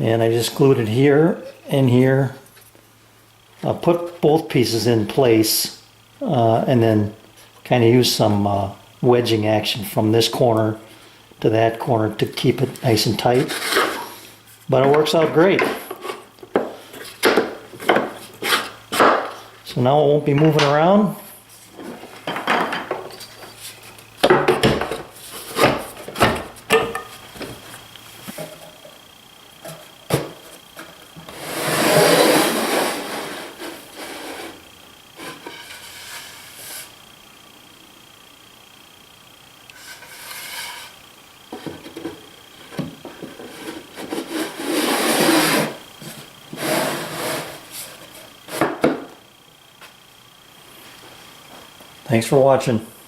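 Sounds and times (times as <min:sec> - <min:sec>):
wood rubbing against wood: 0:13.2 - 0:19.2, 0:30.4 - 0:34.6, 0:39.8 - 0:48.7.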